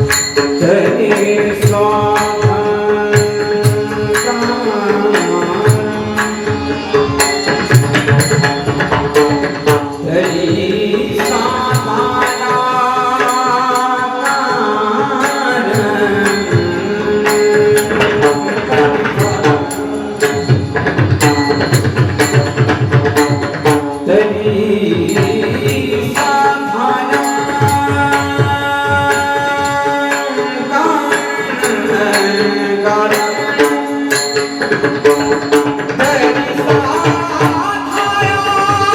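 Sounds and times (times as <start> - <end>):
hand drum rapid strokes: 0.0 - 14.3, 15.2 - 30.2
devotional singing: 0.0 - 22.4, 23.6 - 38.9.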